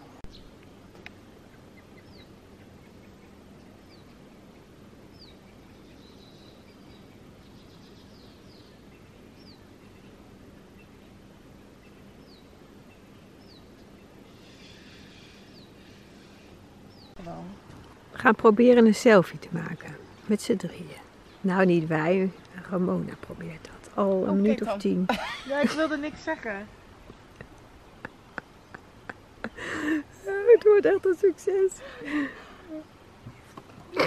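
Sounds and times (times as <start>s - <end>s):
bird chatter: 11.8s - 17.2s.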